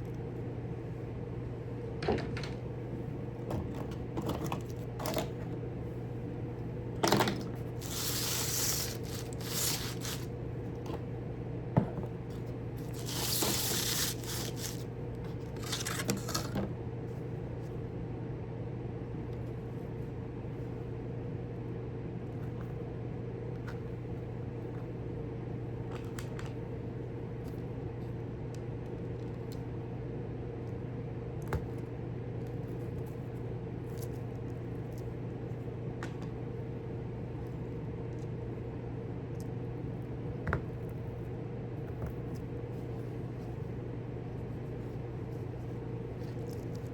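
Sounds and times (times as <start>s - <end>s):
steady electrical hum: 0.0s - 46.9s
rustling hissing bursts: 7.8s - 10.3s.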